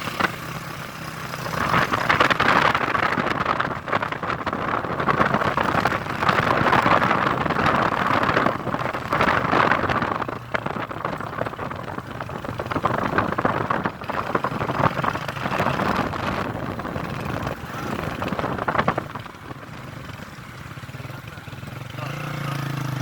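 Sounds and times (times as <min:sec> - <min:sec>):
vehicle road and engine noise: 0:00.0 - 0:23.0.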